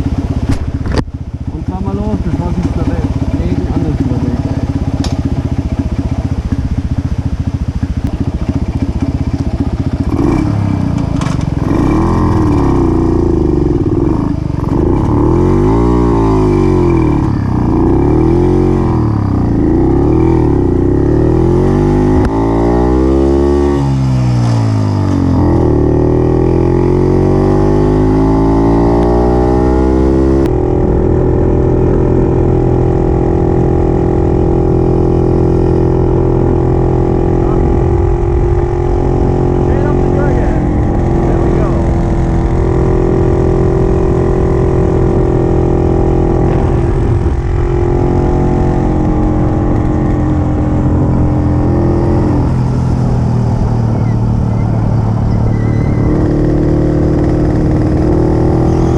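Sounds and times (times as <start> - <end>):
two-stroke engine accelerating: 0.0 - 58.9.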